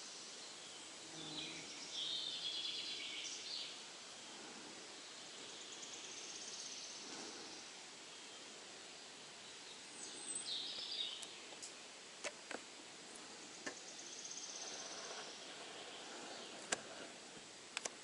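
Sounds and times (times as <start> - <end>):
faint birdsong: 0.0 - 18.0
sharp clicks: 17.8 - 18.0.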